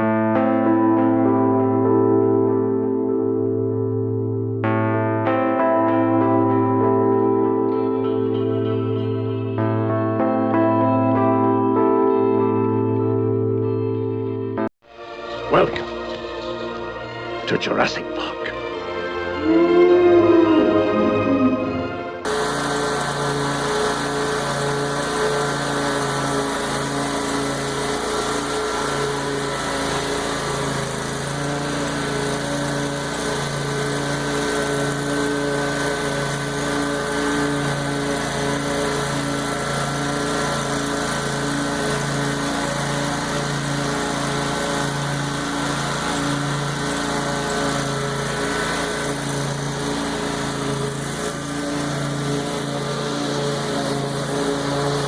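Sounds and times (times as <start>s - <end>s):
lawn mower engine running: 22.2s - 55.0s.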